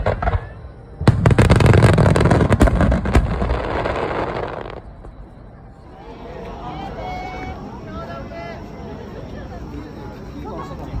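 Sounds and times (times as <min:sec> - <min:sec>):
fireworks bangs and crackling: 0:00.0 - 0:05.4.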